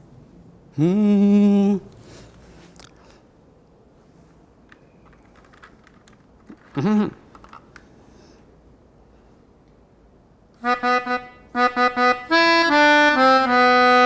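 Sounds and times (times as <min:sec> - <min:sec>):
accordion held note: 0:10.6 - 0:14.0.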